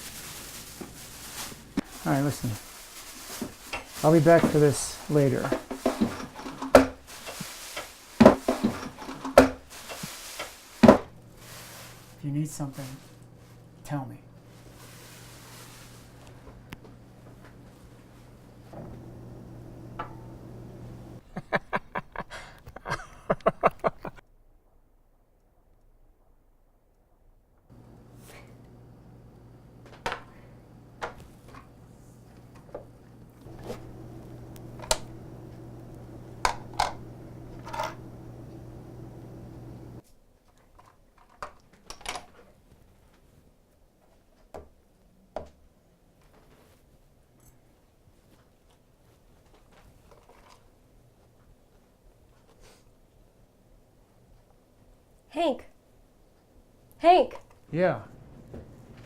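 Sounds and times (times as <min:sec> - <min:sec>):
steady low hum: 0:11.1 - 0:21.2, 0:27.7 - 0:40.0, 0:57.8 - 0:59.0.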